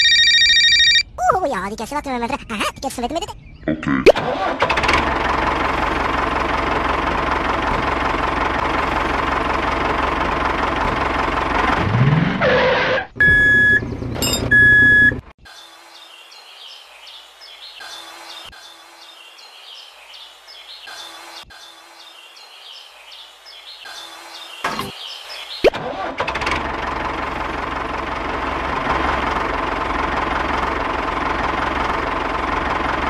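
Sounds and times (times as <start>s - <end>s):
tractor engine running: 4.2s - 15.3s, 25.6s - 33.0s
loud electronic beeps: 13.2s - 15.2s.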